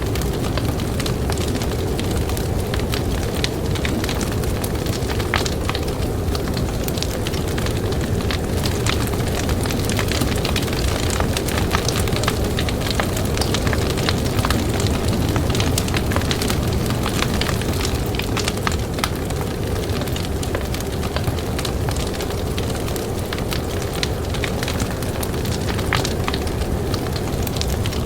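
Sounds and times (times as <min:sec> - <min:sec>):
blizzard wind: 0:00.0 - 0:28.0
campfire crackling and popping: 0:00.0 - 0:28.0.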